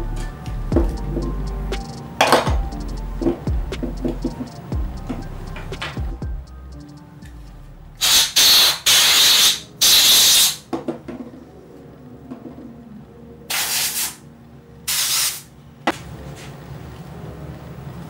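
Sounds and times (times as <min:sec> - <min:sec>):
compressed air hissing blasts: 0:08.0 - 0:10.7, 0:13.5 - 0:14.2, 0:14.9 - 0:15.5.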